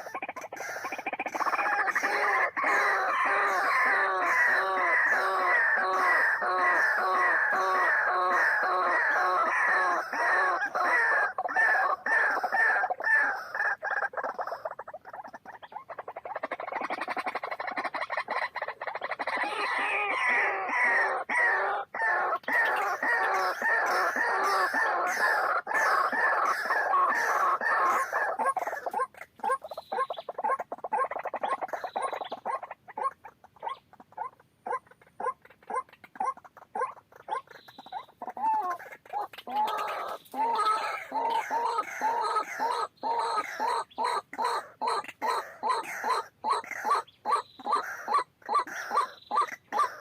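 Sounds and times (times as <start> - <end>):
bird harsh croaking calls: 0.0 - 50.0.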